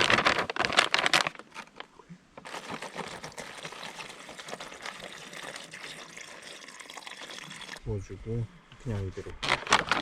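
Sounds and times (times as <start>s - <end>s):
liquid pouring: 2.6s - 7.8s.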